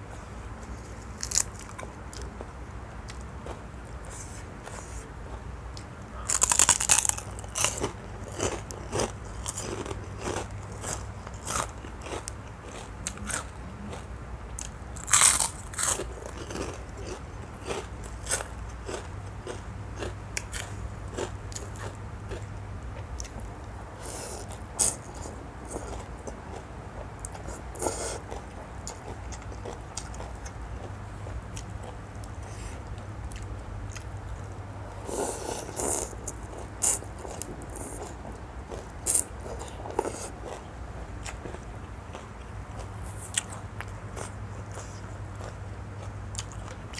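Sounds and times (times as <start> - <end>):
person crunching and chewing food: 0.1 - 46.9.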